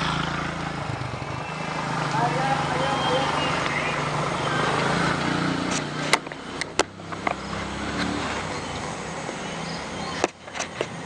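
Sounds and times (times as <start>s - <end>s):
vehicle engine running: 0.0s - 11.0s
sharp clicks or knocks: 5.7s - 7.4s.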